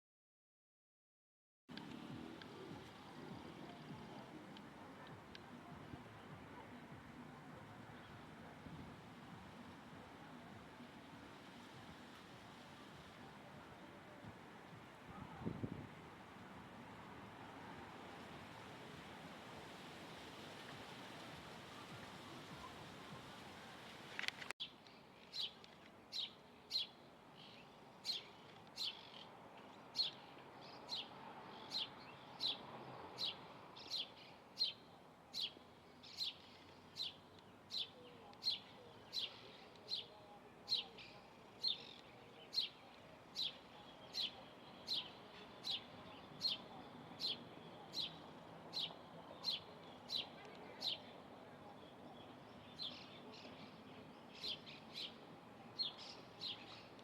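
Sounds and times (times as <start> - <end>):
bird chirping: 24.6 - 57.0.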